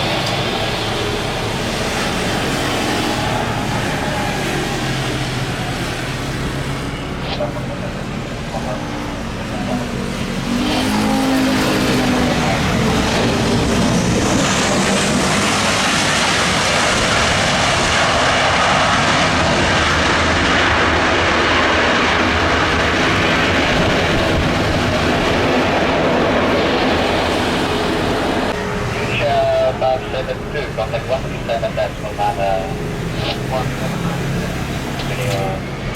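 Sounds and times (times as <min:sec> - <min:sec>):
jet airliner engine: 0:00.0 - 0:35.9.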